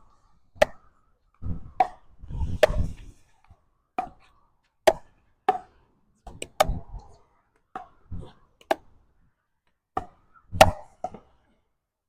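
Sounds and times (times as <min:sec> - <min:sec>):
wind rumbling on microphone: 0:01.4 - 0:03.3.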